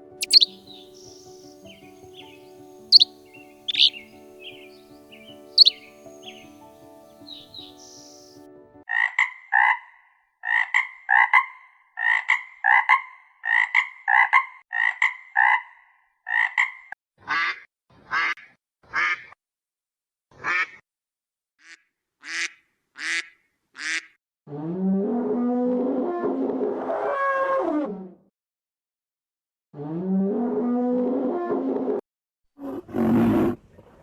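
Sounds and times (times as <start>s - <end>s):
animal calling: 0.0s - 6.6s.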